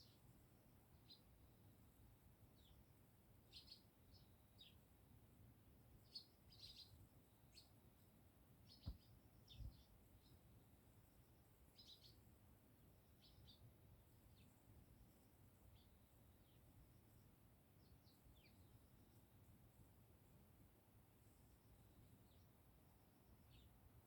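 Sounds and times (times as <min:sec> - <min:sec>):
sparrows chirping: 0:00.0 - 0:01.4, 0:02.5 - 0:04.9, 0:06.0 - 0:07.8, 0:08.6 - 0:12.4, 0:13.0 - 0:20.4, 0:21.1 - 0:22.7, 0:23.4 - 0:23.8.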